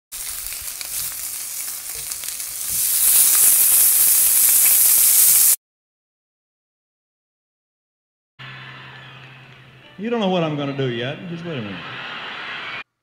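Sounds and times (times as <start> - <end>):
food sizzling in a hot pan: 0.1 - 5.6.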